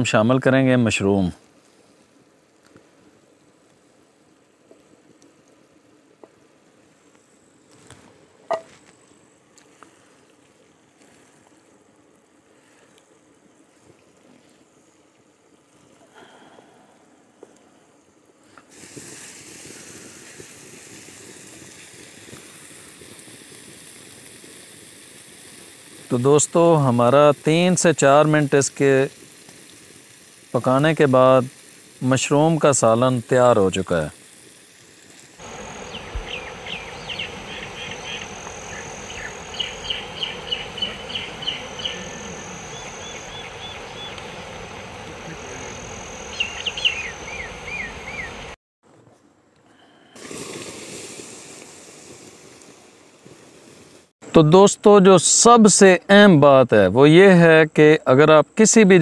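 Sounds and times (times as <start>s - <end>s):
curry sizzling in a frying pan: 18.7s - 44.1s
high insect drone: 30.5s - 48.6s
bird chirping: 35.5s - 44.6s, 45.2s - 48.6s.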